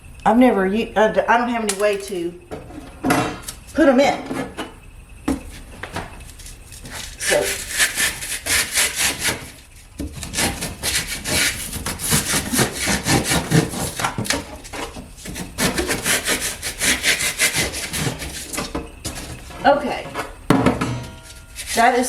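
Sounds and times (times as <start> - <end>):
hand saw cutting: 6.8 - 19.4, 21.6 - 22.0.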